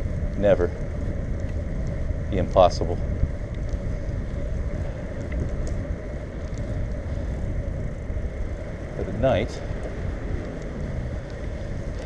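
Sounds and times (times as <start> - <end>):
bicycle rolling rumble: 0.0 - 12.0
wind on microphone: 0.0 - 12.0
faint ticks: 0.2 - 2.6, 3.2 - 12.0.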